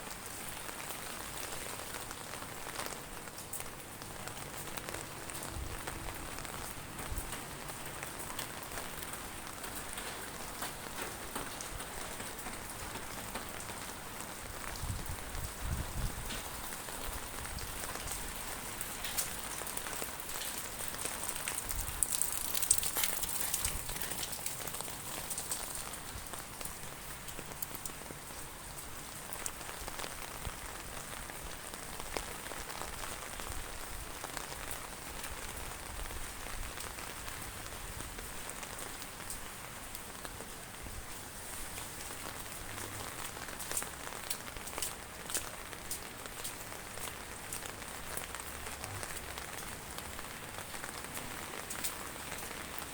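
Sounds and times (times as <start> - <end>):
heavy rain falling: 0.0 - 52.9.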